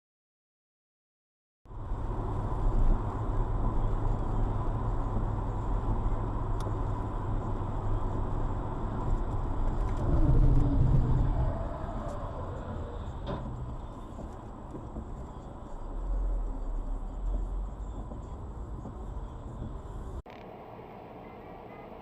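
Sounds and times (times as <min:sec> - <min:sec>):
car engine and road rumble: 0:01.7 - 0:22.0
faint steady tone: 0:15.4 - 0:22.0.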